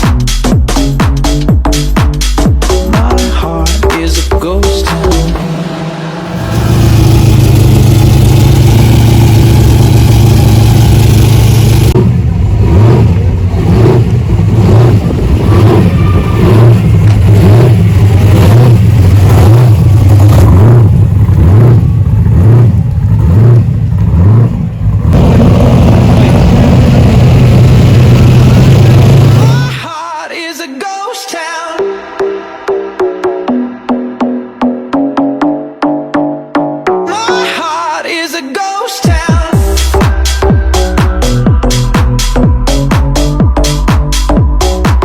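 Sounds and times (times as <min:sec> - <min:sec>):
car engine revving: 0:00.0 - 0:29.9.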